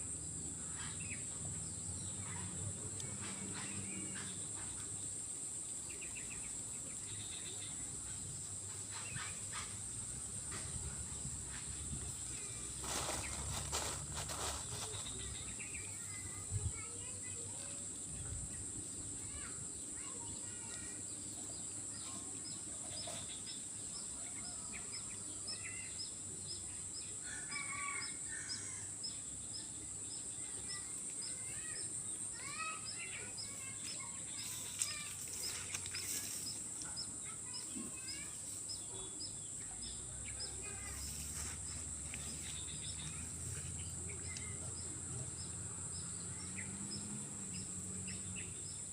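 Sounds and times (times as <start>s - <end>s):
birds chirping: 19.3s - 48.9s.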